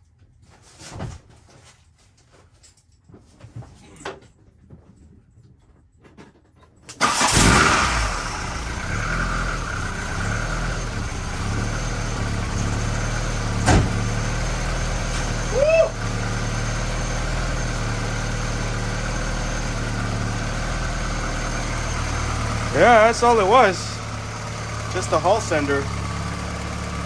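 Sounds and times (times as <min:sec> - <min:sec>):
car engine starting and idling: 0:06.9 - 0:27.0.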